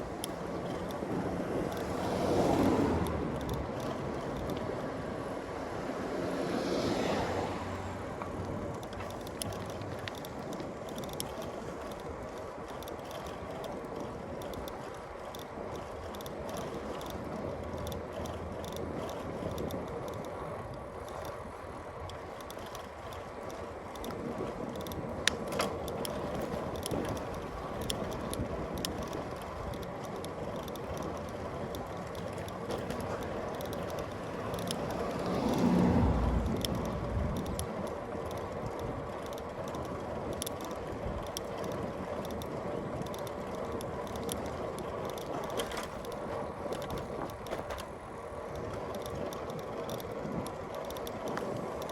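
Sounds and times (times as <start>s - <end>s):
bicycle freewheel ticking and rattling: 0.0s - 6.3s, 8.1s - 51.9s
bicycle tyre and road noise: 0.0s - 51.9s
vehicle passing: 1.7s - 3.6s, 5.2s - 8.5s, 34.2s - 37.5s.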